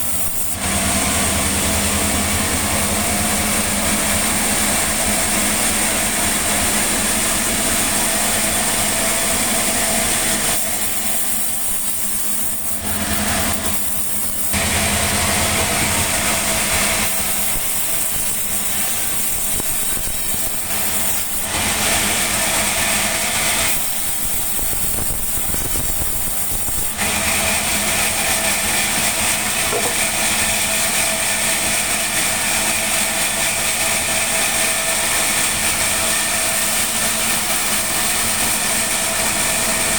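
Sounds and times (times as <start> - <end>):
sawmill machinery whining: 0.0 - 39.9.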